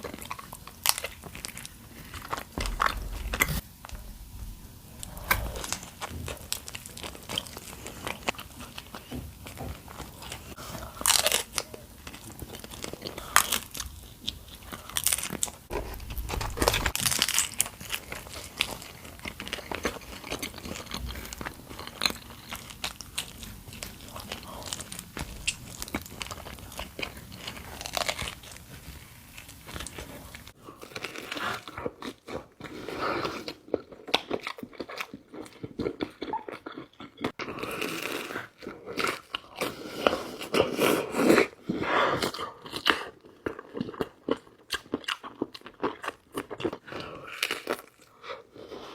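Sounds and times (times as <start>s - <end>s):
wet chewing: 0.0s - 17.6s
background hiss: 2.5s - 7.5s.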